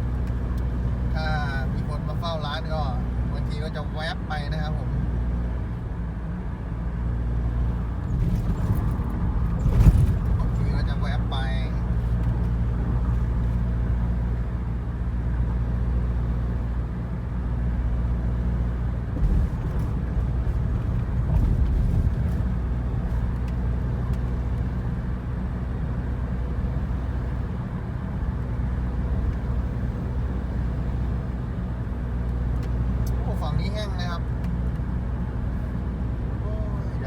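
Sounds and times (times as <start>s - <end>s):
vehicle engine and road noise: 0.0s - 37.0s
vehicle bumps: 8.1s - 10.8s, 19.1s - 23.4s.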